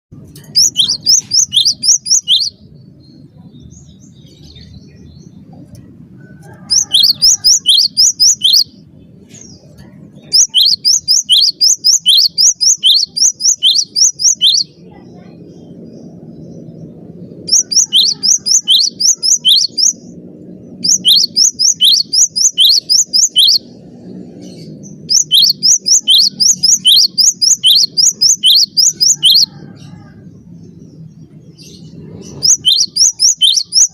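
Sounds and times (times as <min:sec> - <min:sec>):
faint low hum: 0:00.1 - 0:33.9
bird singing whistled notes: 0:00.5 - 0:05.4, 0:06.6 - 0:08.8, 0:10.2 - 0:14.7, 0:17.4 - 0:20.0, 0:20.7 - 0:23.8, 0:24.5 - 0:29.6, 0:31.6 - 0:33.9.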